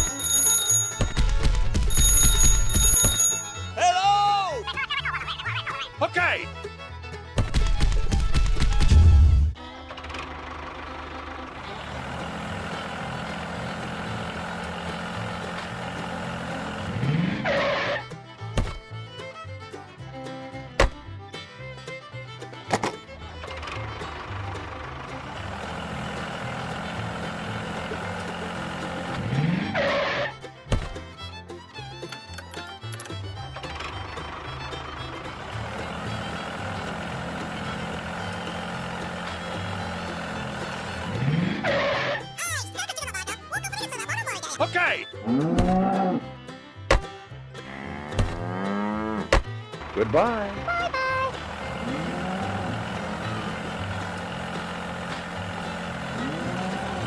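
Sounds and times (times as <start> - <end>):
small motor running: 0.0 - 3.8, 7.5 - 18.2, 22.3 - 42.4, 49.8 - 57.0.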